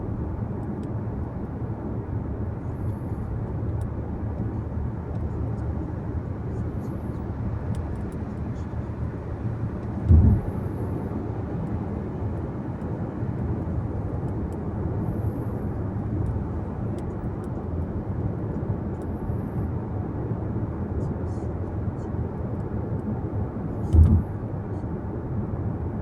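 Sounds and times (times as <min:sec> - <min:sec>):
car tyres and engine rumble: 0:00.0 - 0:26.0
low thump: 0:10.0 - 0:10.6, 0:23.9 - 0:24.3.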